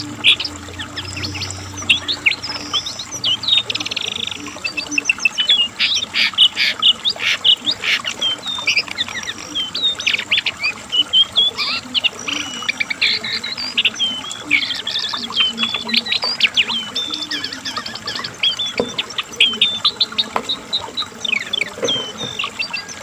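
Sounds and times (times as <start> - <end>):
bird singing fast varied song: 0.0 - 23.0.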